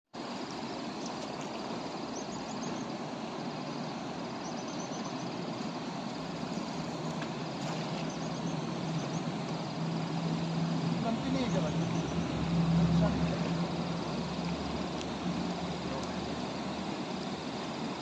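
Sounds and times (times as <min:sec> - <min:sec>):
river water rushing: 0:00.2 - 0:18.0.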